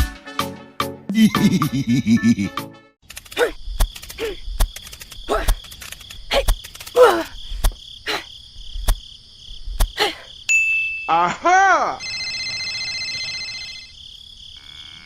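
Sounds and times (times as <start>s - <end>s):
sharp clicks: 3.0s - 7.8s, 8.8s - 9.0s, 9.8s - 10.0s
crickets trilling: 3.1s - 15.0s.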